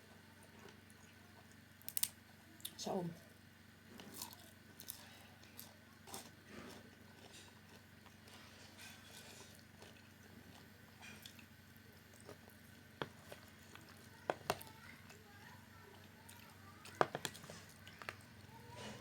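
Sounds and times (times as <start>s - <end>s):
person chewing: 4.0s - 19.0s.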